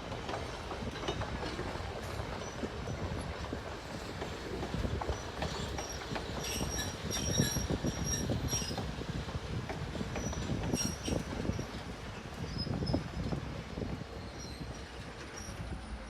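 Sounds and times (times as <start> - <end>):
train cars rumbling on rails: 0.0 - 16.0
wheel and rail-joint clicks: 0.1 - 9.0, 9.6 - 16.0
steel wheel squeals: 5.6 - 8.8, 10.2 - 11.8, 12.4 - 13.4, 14.1 - 16.0.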